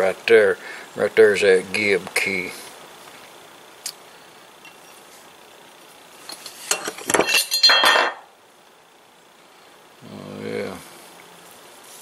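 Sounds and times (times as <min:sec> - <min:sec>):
metal parts clattering and clinking: 0:06.7 - 0:08.2.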